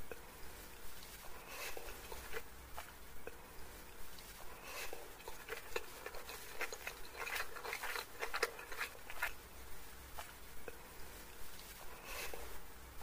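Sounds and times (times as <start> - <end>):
chewing noodles: 1.2 - 3.4, 4.4 - 9.4.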